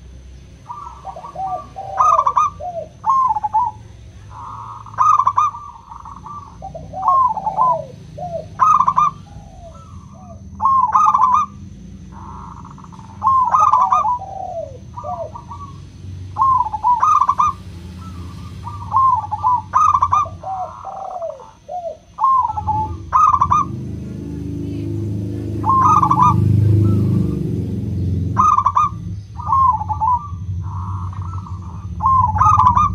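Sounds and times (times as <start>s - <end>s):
dove cooing: 0.0s - 32.9s.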